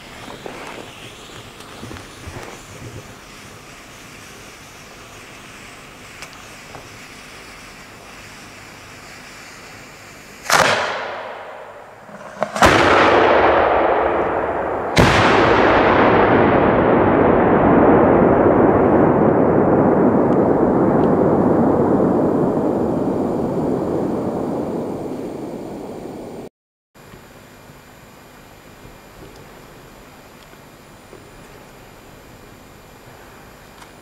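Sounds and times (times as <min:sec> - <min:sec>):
loud firework bangs: 0:00.0 - 0:25.1
rolling echo: 0:10.4 - 0:26.2.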